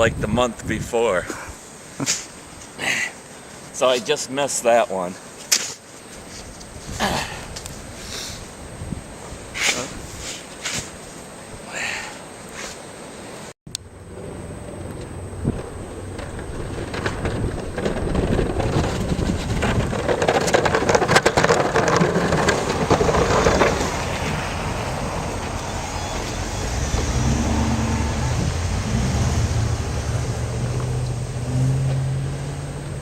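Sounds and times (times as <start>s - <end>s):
engine running: 13.7s - 20.0s, 20.6s - 33.0s
loud rushing crackling: 14.0s - 31.5s.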